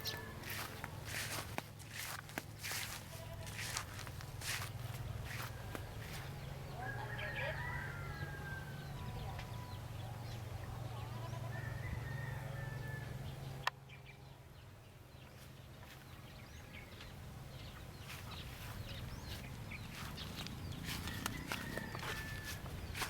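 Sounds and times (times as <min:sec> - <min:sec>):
chickens clucking: 0:17.7 - 0:23.0.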